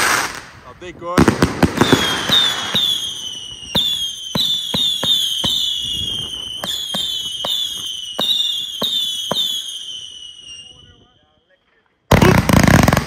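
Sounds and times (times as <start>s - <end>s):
falling firework whistles: 0.0s - 0.5s, 1.4s - 11.3s
firework shots cracking: 0.0s - 10.2s, 12.1s - 13.0s.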